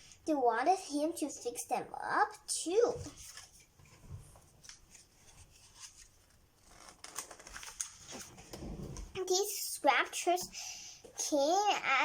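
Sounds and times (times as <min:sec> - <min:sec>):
book pages turning: 0:03.0 - 0:09.1.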